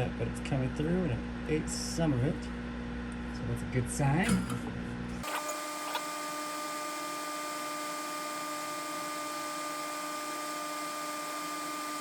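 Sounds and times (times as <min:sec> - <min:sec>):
small motor whirring: 0:05.2 - 0:12.0.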